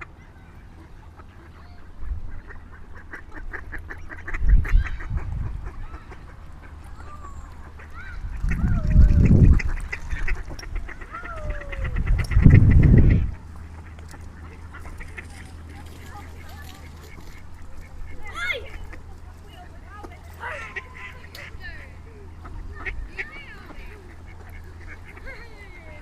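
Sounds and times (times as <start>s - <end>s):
waterfowl calling: 0.0s - 26.0s
loud low rumbling surges: 1.9s - 15.0s.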